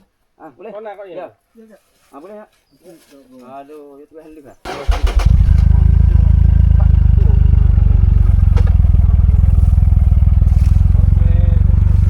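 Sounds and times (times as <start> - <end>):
motorcycle engine running: 4.7 - 12.0.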